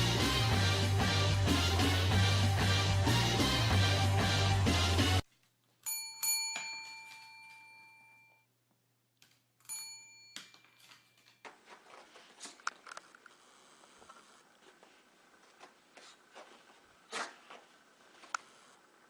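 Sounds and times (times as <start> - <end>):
bell-like chime: 5.8 - 8.5, 9.7 - 11.2.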